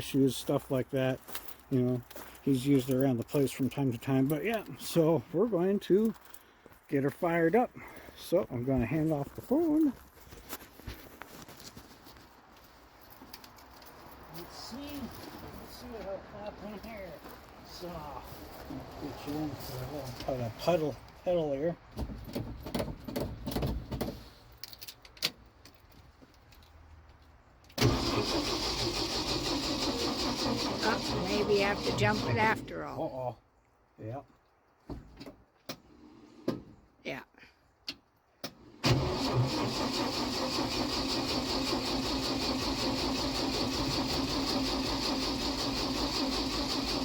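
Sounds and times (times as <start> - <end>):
engine starter cranking: 27.8 - 32.6, 38.8 - 47.0.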